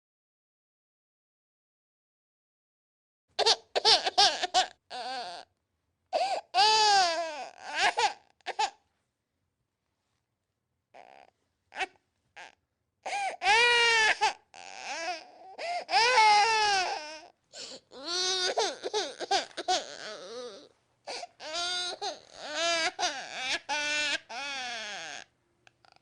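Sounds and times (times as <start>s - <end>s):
infant crying: 3.4s - 5.5s, 6.1s - 8.8s, 10.9s - 26.0s
infant gasping for breath: 6.1s - 6.6s, 13.0s - 13.4s, 15.4s - 16.0s, 17.5s - 17.9s, 21.0s - 21.4s.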